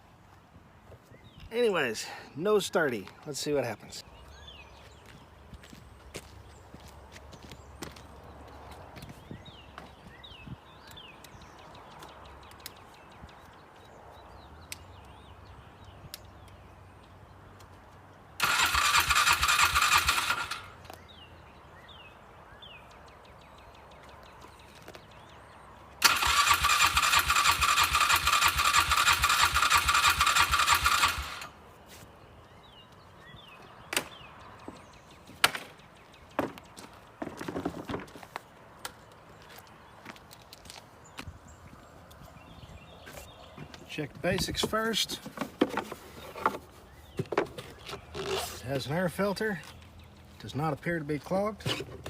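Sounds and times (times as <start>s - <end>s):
engine cranking on starter: 18.4s - 20.8s, 26.0s - 31.5s.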